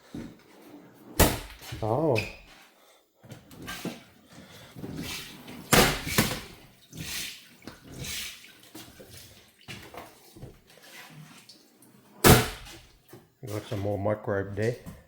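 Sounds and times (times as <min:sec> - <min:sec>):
water splashing into a sink: 0:05.7 - 0:13.1.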